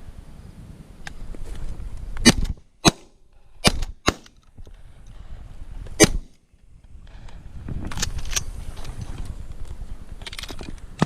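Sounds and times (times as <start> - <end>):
shotgun blasts: 2.2 - 4.3, 6.0 - 6.3.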